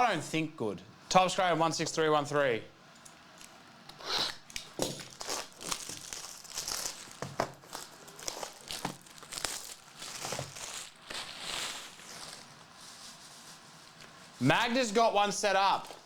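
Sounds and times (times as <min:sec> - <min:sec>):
plastic wrapping crinkling and tearing: 0:04.2 - 0:16.0.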